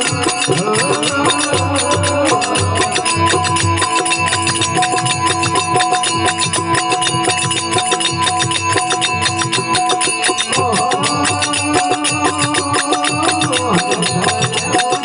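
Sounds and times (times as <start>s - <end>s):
person singing: 0.0s - 5.1s, 10.0s - 15.0s
held instrumental notes: 0.0s - 15.0s
sharp percussive strokes: 0.0s - 15.0s.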